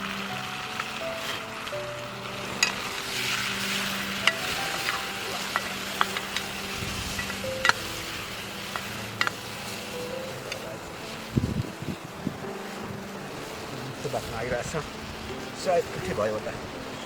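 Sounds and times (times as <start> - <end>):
meat sizzling in a pan: 0.0 - 17.0
utensil clicking against pan: 4.2 - 6.5.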